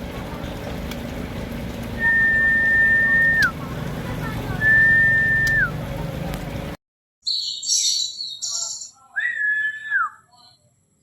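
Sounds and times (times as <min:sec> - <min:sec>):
songbirds chirping rapidly: 0:00.1 - 0:10.8
long whistle dropping in pitch: 0:02.0 - 0:03.5.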